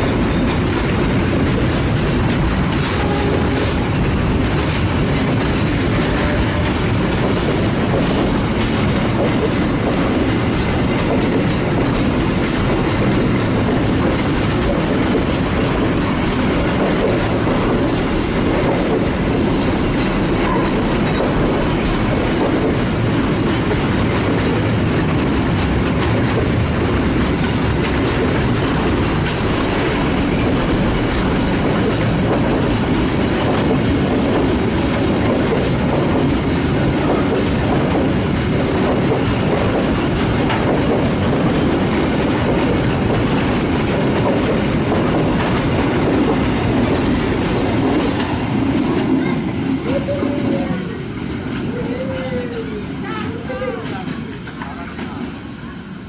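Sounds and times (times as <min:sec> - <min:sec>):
clatter over rail joints: 0:00.0 - 0:51.8, 0:52.8 - 0:55.7
train wheels rumbling on rails: 0:00.0 - 0:56.0.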